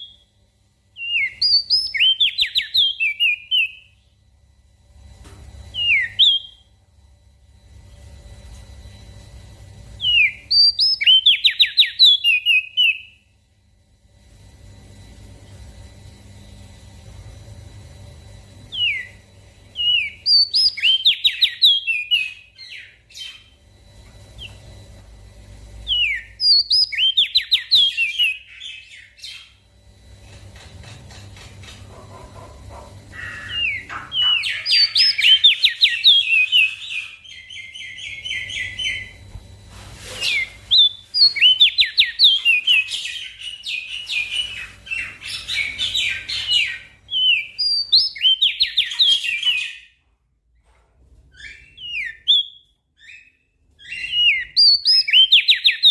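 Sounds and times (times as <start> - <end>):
bird singing high chirps: 1.0 - 4.0, 10.0 - 13.2, 18.7 - 23.6, 25.8 - 29.6, 33.2 - 39.2, 40.3 - 49.9, 51.4 - 55.9.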